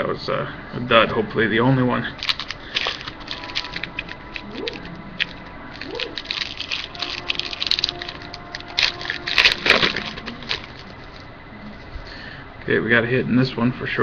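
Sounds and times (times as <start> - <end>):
wrapper crinkling and tearing: 2.2 - 12.0.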